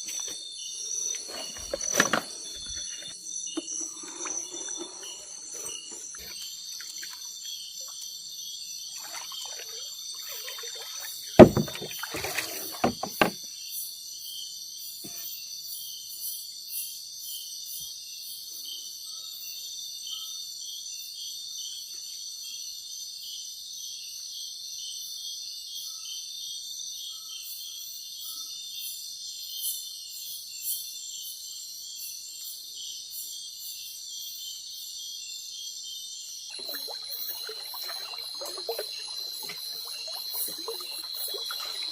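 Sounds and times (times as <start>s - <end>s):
night insects chirping: 0.0s - 15.0s, 15.6s - 41.9s
loud knocks: 11.4s - 12.0s.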